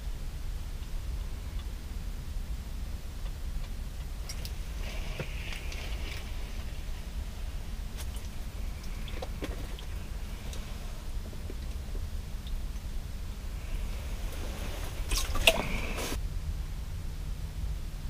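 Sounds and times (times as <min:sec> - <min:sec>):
low rumble: 0:00.0 - 0:18.0
brief rustle: 0:13.7 - 0:16.2.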